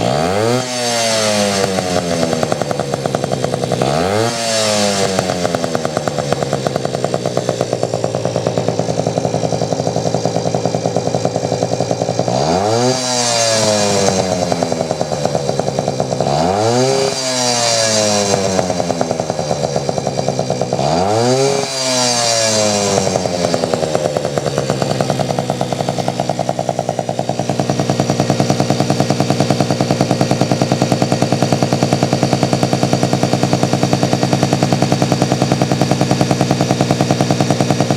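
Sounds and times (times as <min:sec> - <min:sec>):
moped two-stroke engine revving: 0:00.0 - 0:37.9.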